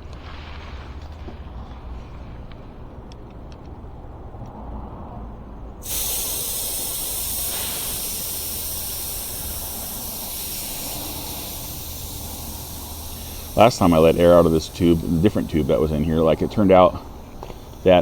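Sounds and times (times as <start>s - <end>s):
air hissing from tyre valve: 5.8s - 18.0s.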